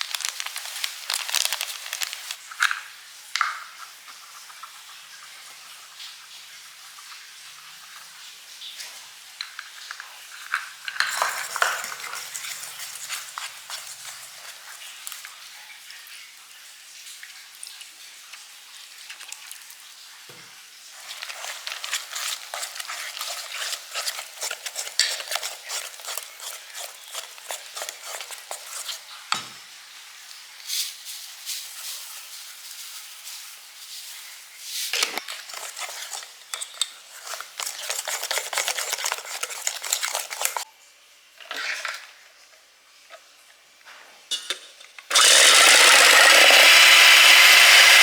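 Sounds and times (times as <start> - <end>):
utensil stirring in a bowl: 0.0 - 2.6, 9.6 - 15.2, 20.9 - 29.3, 34.8 - 40.7, 45.1 - 48.0.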